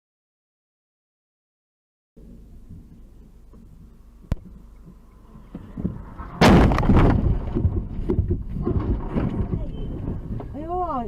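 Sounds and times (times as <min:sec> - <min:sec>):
vehicle rumble: 0:02.2 - 0:11.0
car collision impact: 0:05.5 - 0:09.6.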